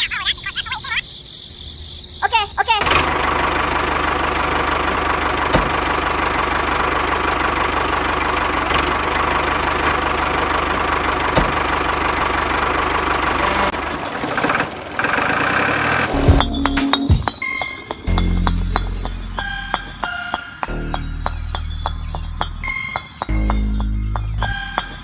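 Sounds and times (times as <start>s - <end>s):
small engine running: 2.8s - 16.4s.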